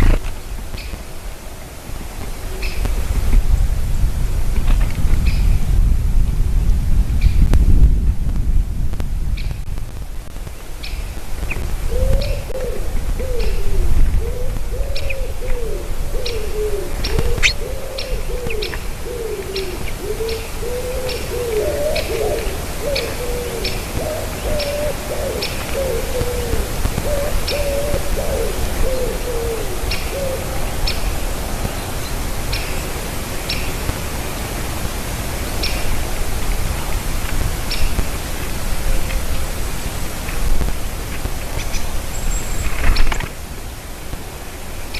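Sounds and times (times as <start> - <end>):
wind noise: 0.0 - 44.9
low cooing bird calls: 10.8 - 33.8.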